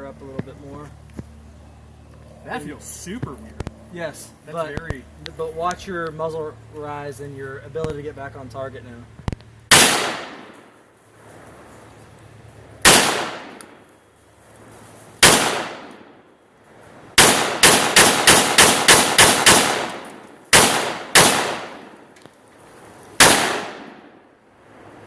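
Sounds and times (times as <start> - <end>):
gunshots with ringing echo: 9.7 - 10.6, 12.8 - 13.6, 15.2 - 16.2, 17.2 - 22.0, 23.2 - 24.2.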